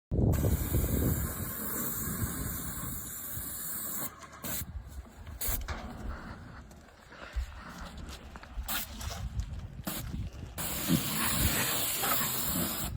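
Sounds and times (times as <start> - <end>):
paint sprayer hissing: 0.4 - 4.7, 9.8 - 12.9.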